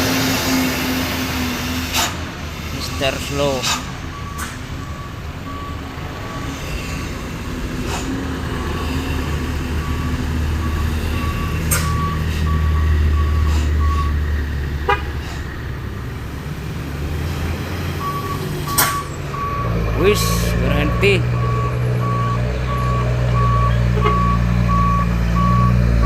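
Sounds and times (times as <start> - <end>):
heavy truck engine labouring: 0.0 - 26.0
truck warning beeper: 2.7 - 7.2, 8.8 - 14.2, 17.9 - 26.0.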